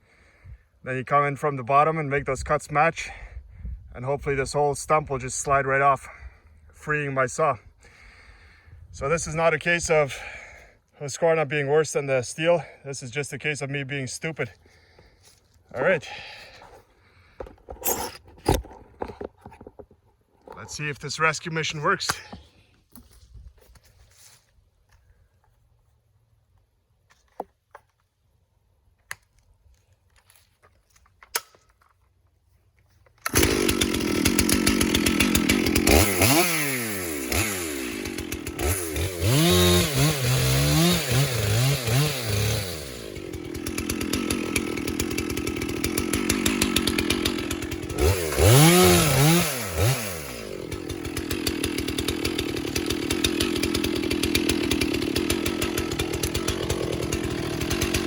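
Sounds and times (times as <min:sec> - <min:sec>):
chainsaw cutting at high revs: 0:06.9 - 0:10.6, 0:13.4 - 0:19.2, 0:33.2 - 0:58.0.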